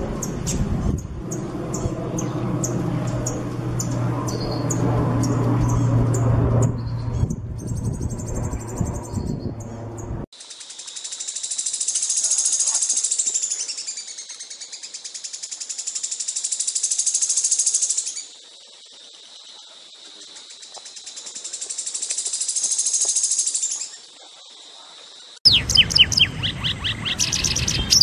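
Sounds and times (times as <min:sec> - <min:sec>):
songbird high chirps: 0:00.1 - 0:28.0.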